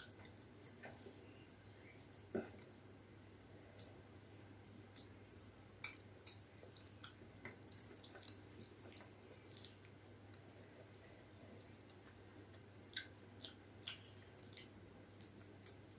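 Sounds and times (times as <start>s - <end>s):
low steady hum: 0.0s - 15.9s
person chewing soft food: 4.9s - 15.9s.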